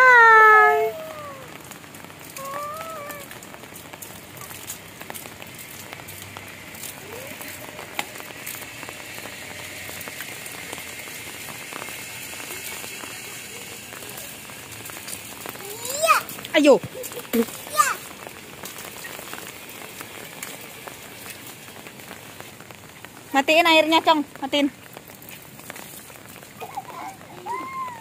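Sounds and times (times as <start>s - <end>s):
young child's vocal sound: 0.0s - 1.5s, 2.4s - 3.3s, 15.6s - 16.3s, 17.6s - 18.0s, 26.6s - 28.0s
rain on hard surfaces: 0.0s - 28.0s.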